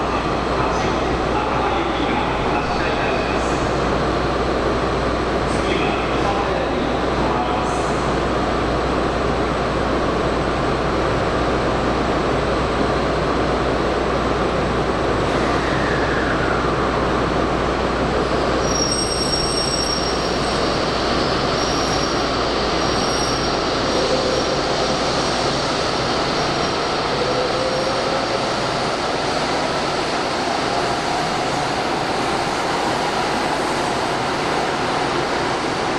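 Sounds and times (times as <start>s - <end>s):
train noise at platform: 0.0s - 35.9s.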